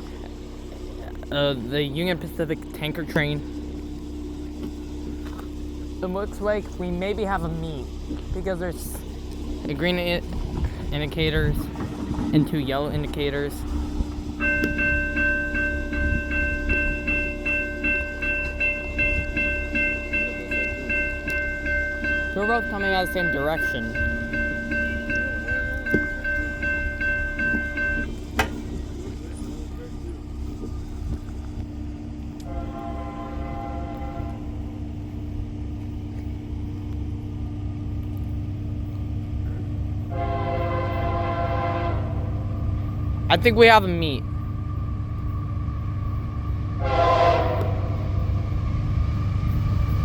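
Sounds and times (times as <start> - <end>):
railroad crossing bell dinging: 0.0 - 37.8, 38.4 - 50.0
approaching train rumble: 0.0 - 50.0
train air horn: 32.4 - 34.5, 40.1 - 42.4, 46.8 - 48.3.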